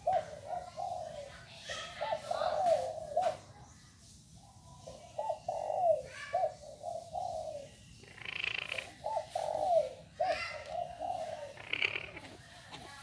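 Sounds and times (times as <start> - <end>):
francolin crowing: 10.3 - 12.3.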